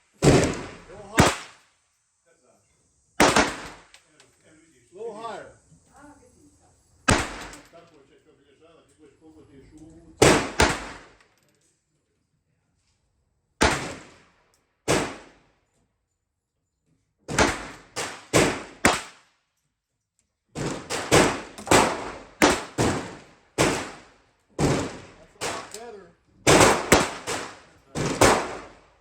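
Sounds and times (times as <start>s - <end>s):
pistol shots: 0.2s - 1.6s, 3.2s - 4.0s, 7.1s - 7.7s, 10.2s - 11.2s, 13.6s - 14.3s, 14.9s - 15.4s, 17.3s - 19.2s, 20.6s - 25.8s, 26.5s - 28.9s.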